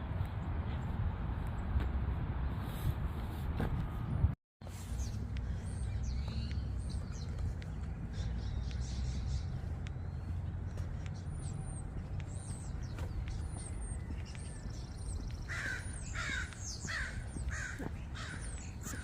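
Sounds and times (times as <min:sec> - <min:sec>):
steady low rumble: 0:00.0 - 0:19.0
small songbirds chirping: 0:04.6 - 0:19.0
crow cawing: 0:15.5 - 0:19.0.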